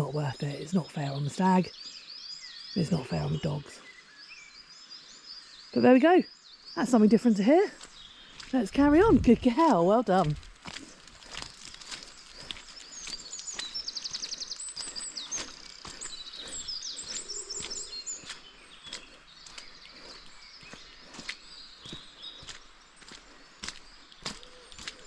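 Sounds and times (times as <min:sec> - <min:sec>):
birds singing: 0:00.0 - 0:25.0
footsteps crunching on forest floor: 0:07.6 - 0:25.0.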